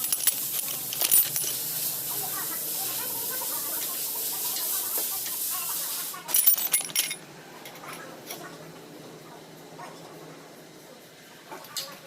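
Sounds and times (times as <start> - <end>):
metal parts clinking: 0.0 - 1.8, 6.3 - 8.4
high hiss of air: 1.5 - 6.3.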